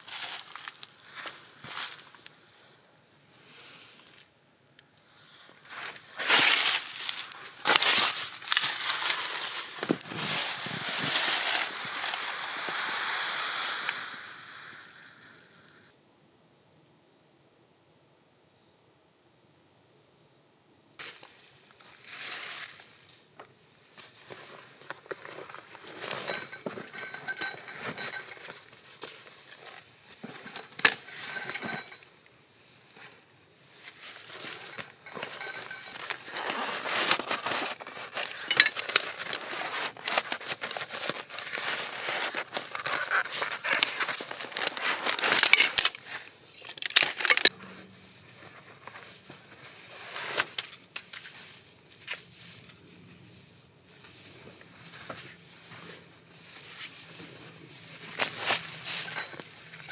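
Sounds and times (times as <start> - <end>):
crunching and crackling: 0.0 - 2.3, 5.6 - 13.1, 33.8 - 47.6.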